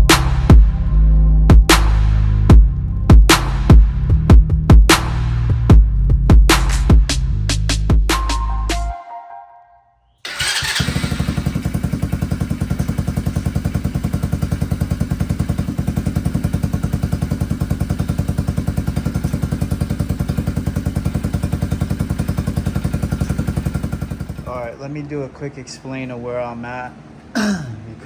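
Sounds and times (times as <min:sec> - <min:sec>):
go-kart engine idling: 0:10.2 - 0:24.8.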